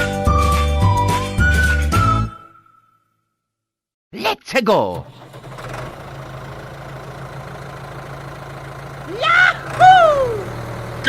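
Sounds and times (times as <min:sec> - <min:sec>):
high-pitched vocal cries: 0:09.1 - 0:10.5.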